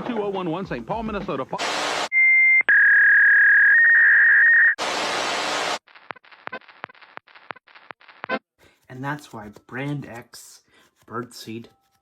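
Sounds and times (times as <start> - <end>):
static hiss: 4.8 - 5.8.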